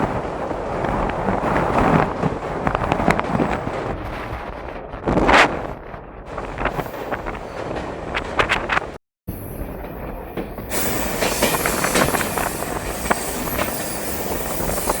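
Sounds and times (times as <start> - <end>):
train running on rails: 0.0 - 5.6, 6.3 - 15.0
wheel clacks and squeaks: 9.5 - 15.0.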